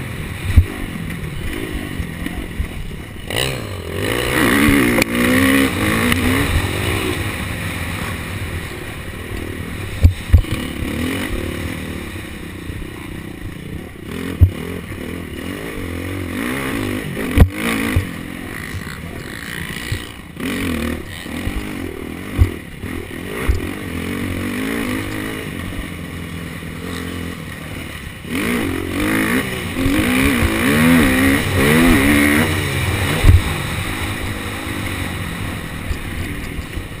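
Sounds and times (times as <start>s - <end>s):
motocross engine revving: 0.0s - 37.0s
sharp thumps: 29.8s - 34.0s.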